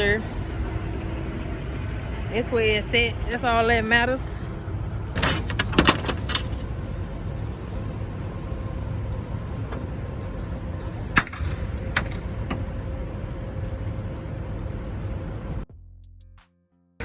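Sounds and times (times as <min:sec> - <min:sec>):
diesel engine idling: 0:00.0 - 0:15.7.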